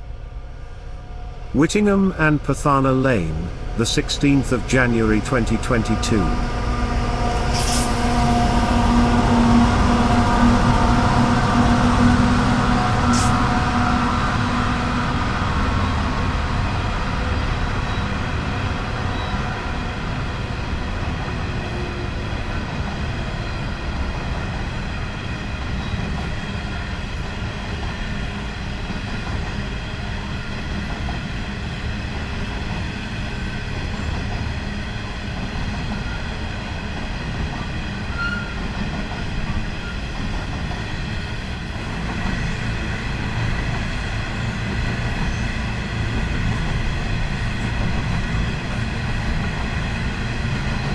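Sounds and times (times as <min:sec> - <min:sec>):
faint steady high tones: 0:01.4 - 0:08.3
train wheels rumbling on rails: 0:03.4 - 0:50.9.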